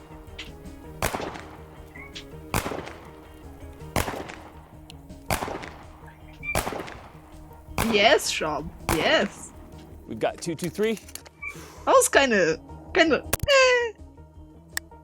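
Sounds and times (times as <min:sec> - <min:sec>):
background music: 0:00.0 - 0:15.0
sharp gunshots: 0:00.8 - 0:09.8.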